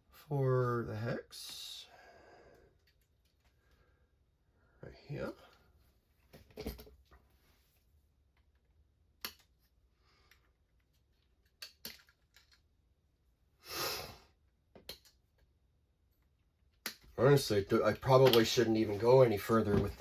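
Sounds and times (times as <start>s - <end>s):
small plastic parts clicking: 9.2s - 9.6s, 11.2s - 12.7s.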